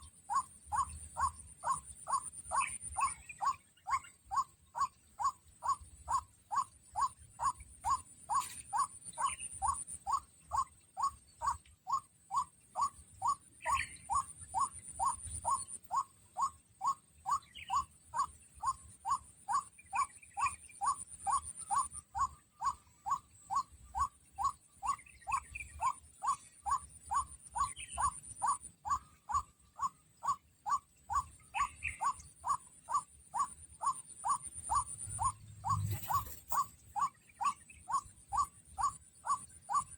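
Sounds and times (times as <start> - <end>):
waterhen calling: 20.4 - 39.9.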